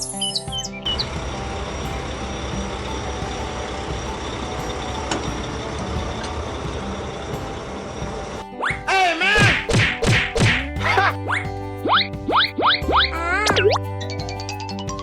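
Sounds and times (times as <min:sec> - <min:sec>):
truck engine rumble: 0:00.8 - 0:08.6.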